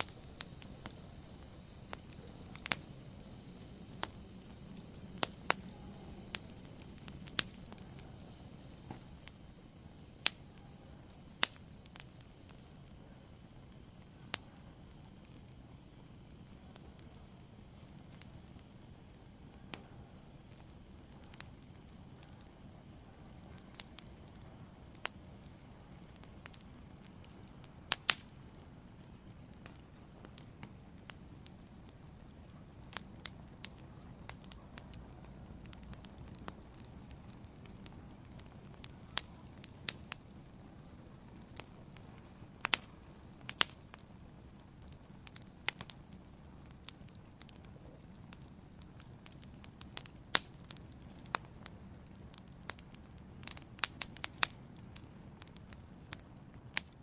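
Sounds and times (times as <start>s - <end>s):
wood fire burning in a fireplace: 0.0s - 57.0s.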